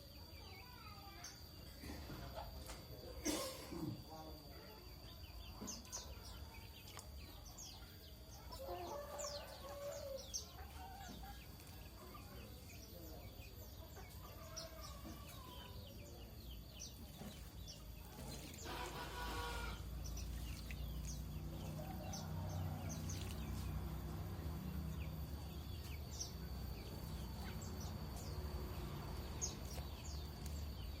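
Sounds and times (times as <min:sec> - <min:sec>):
chickens clucking: 0:05.4 - 0:31.0
rooster crowing: 0:08.5 - 0:10.4, 0:18.6 - 0:19.9, 0:21.7 - 0:23.6.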